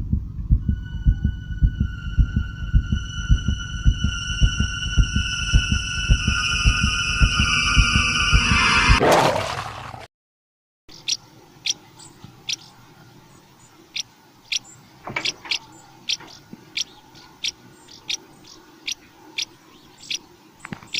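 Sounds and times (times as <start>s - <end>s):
music: 0.1s - 9.0s.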